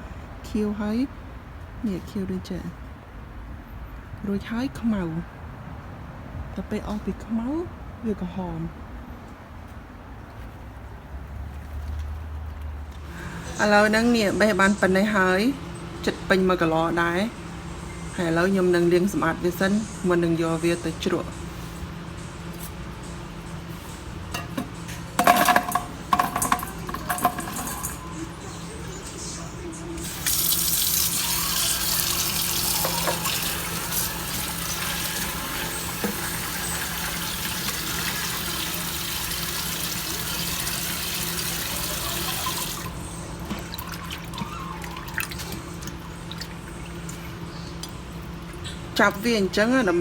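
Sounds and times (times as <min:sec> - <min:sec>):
knocks and rattles of handling: 0:24.4 - 0:27.9
water running from a tap: 0:25.2 - 0:28.2, 0:30.0 - 0:48.0.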